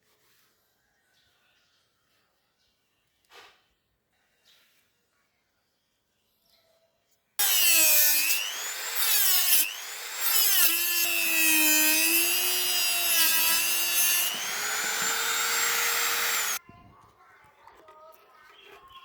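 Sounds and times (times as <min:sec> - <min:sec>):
power tool motor whine: 0:07.4 - 0:16.6
rough scraping: 0:07.4 - 0:16.6.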